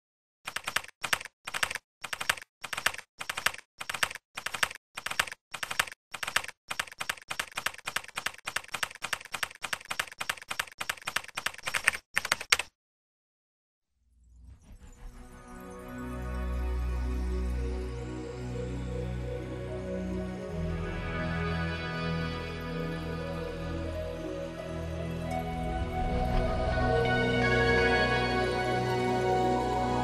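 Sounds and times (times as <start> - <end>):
typing on computer keyboard: 0.5 - 12.7.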